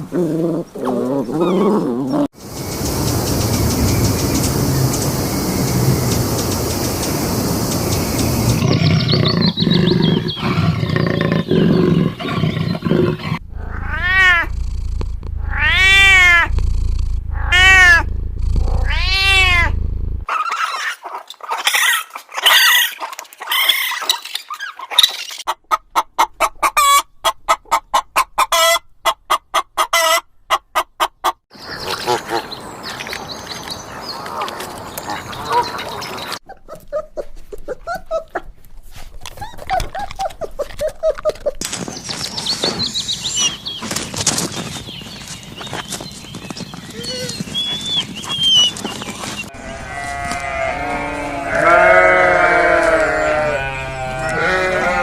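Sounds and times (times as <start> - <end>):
arching pitched animal cries: 11.6 - 20.9, 46.9 - 55.0
fast repeated pulses: 13.4 - 20.3.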